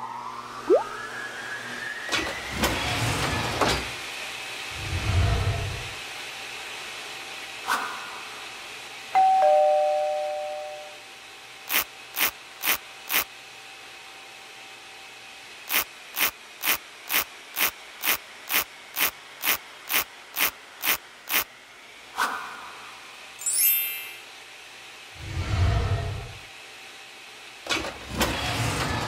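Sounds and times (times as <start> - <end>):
two-note ding-dong chime: 9.2 - 11.0.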